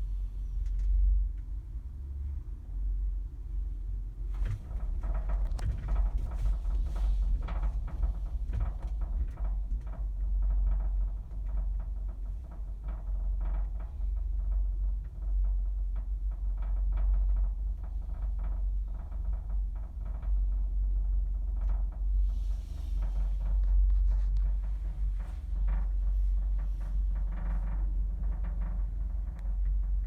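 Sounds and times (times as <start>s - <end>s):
low wind rumble: 0.0s - 30.0s
cabin rattling and creaking: 23.4s - 30.0s.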